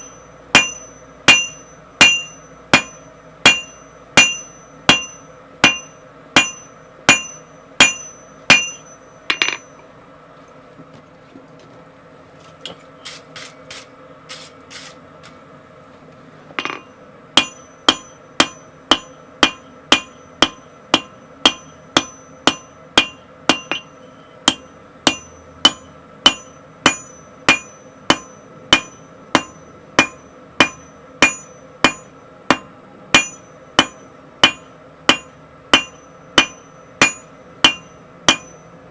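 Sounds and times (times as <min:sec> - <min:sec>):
hammer striking steel on anvil: 0:00.0 - 0:09.9, 0:16.6 - 0:38.8.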